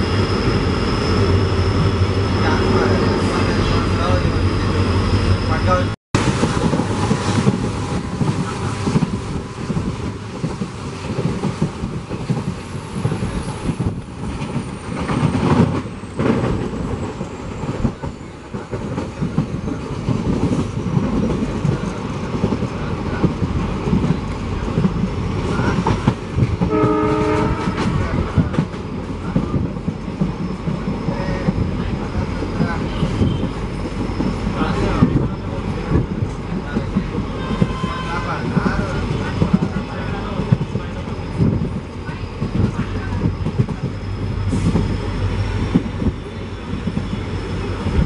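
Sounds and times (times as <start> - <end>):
train horn blast: 26.6 - 28.4, 37.3 - 38.5.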